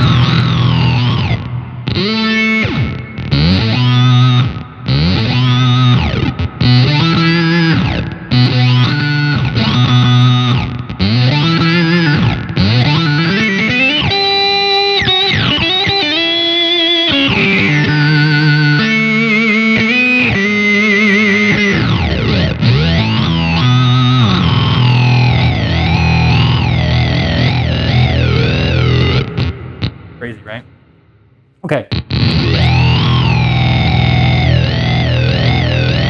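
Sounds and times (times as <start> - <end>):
buzzy synthesized electric guitar: 0.0 - 30.6, 31.8 - 36.0.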